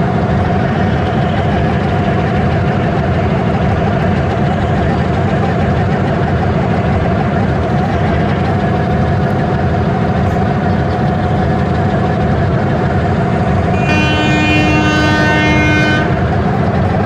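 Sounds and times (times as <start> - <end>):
train engine rumbling: 0.0 - 17.0
train horn: 13.6 - 16.9.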